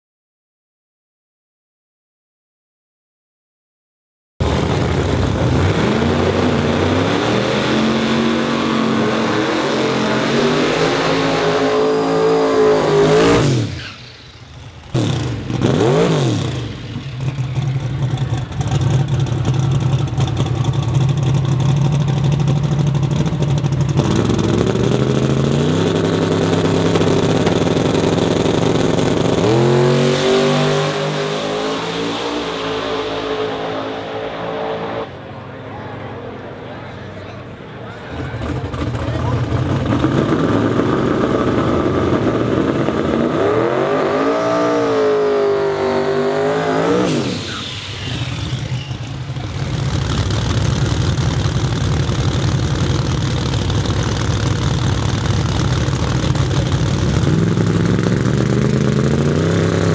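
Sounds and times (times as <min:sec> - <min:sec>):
drag car engine revving: 0:04.4 - 0:35.5, 0:37.9 - 0:59.9.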